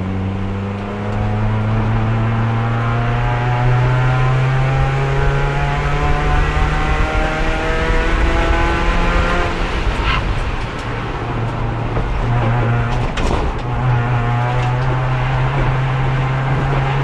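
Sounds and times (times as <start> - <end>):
race car engine running: 0.0 - 17.0
knocks: 11.4 - 17.0.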